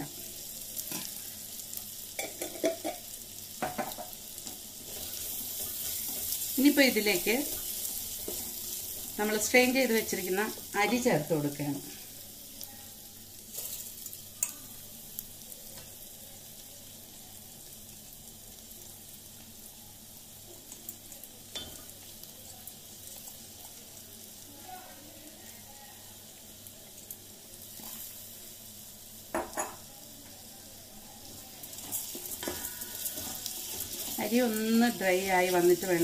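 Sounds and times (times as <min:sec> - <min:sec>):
rice sizzling in a pan: 0:00.0 - 0:36.0
spoon knocking against pan: 0:03.6 - 0:04.2.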